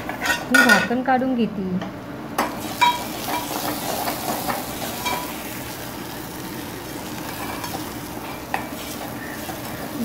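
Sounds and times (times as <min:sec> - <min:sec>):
paste sizzling in oil: 0:02.5 - 0:10.0.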